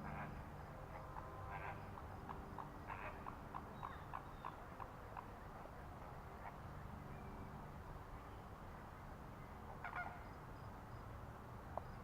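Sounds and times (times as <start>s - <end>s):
flamingos honking: 0.0s - 2.0s, 2.8s - 5.3s, 9.8s - 10.2s.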